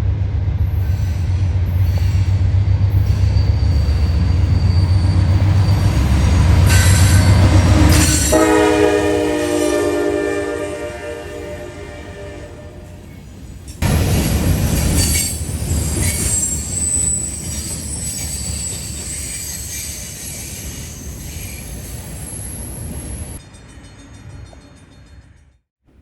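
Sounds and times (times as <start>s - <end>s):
freight train wheels rumbling: 0.0s - 25.6s
wheel squeal: 0.8s - 8.4s, 14.8s - 23.4s.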